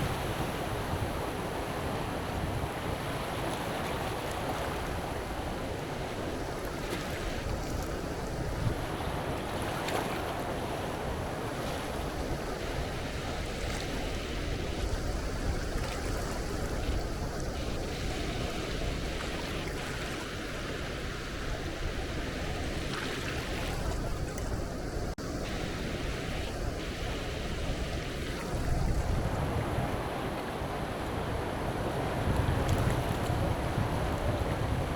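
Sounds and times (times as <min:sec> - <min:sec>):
sea waves washing onto beach: 0:00.0 - 0:34.9
wind gusting on microphone: 0:00.0 - 0:34.9.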